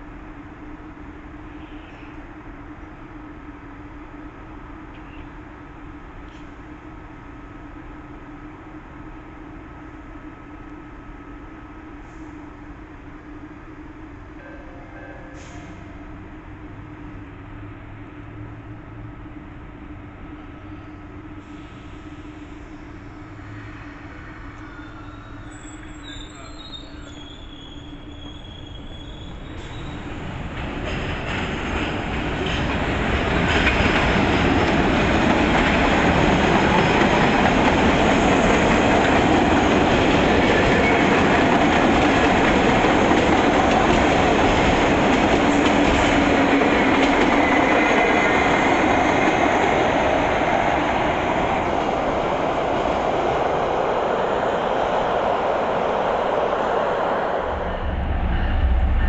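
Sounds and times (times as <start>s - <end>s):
train rumbling on rails: 0.0s - 59.0s
high wheel squeal: 24.6s - 30.2s.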